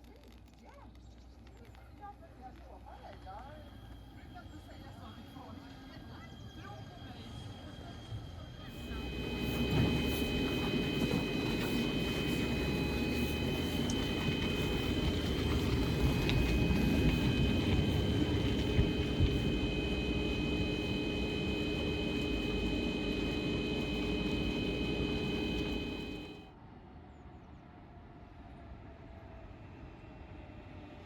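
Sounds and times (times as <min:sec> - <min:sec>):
electric train rumble: 0:08.6 - 0:26.5
high whines: 0:08.7 - 0:26.5.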